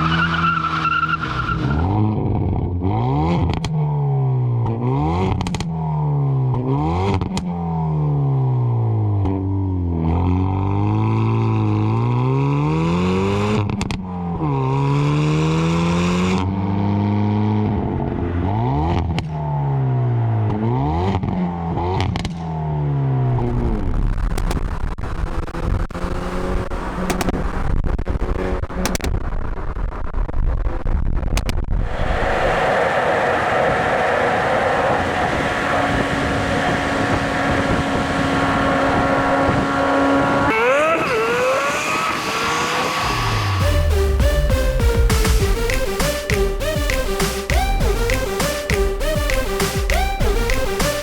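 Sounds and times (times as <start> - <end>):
car engine revving: 0.0 - 29.0, 31.8 - 51.0
sharp exhaust pops: 27.0 - 27.7.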